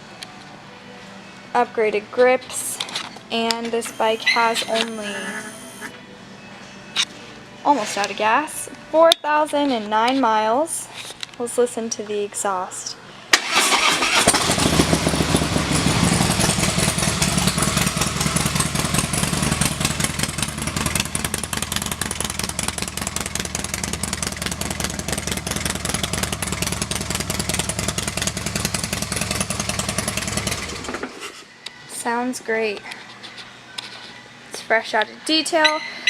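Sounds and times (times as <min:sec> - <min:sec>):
motorcycle engine idling: 0:14.1 - 0:30.9.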